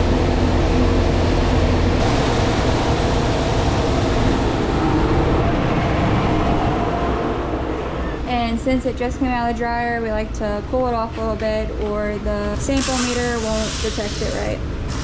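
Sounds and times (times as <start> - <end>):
grain dryer machine drone: 0.0 - 6.2.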